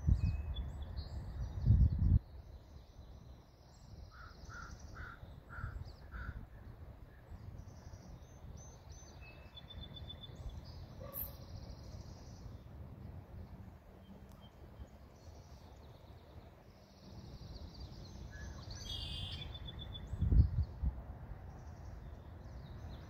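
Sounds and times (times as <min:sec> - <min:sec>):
low rumble of wind: 0:00.0 - 0:23.0
high bird chirping and peeping: 0:17.0 - 0:20.7
short bird calls: 0:18.3 - 0:20.0.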